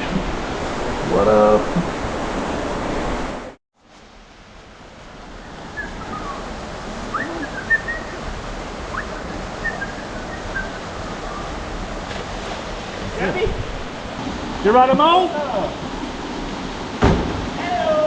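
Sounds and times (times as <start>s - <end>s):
creek water rushing: 0.0s - 18.0s
faint high bird chirps: 5.7s - 6.5s, 7.1s - 8.2s, 8.9s - 11.5s.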